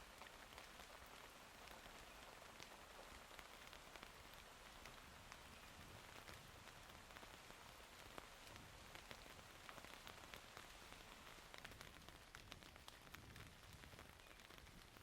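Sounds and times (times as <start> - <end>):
faint steady rain: 0.0 - 15.0
raindrops ticking on surfaces: 0.0 - 15.0.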